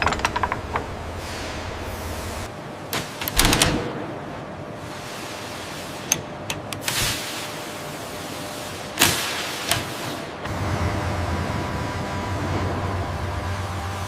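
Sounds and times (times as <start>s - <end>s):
sharp clicks and knocks: 0.0s - 1.1s
factory floor noise: 0.0s - 14.0s.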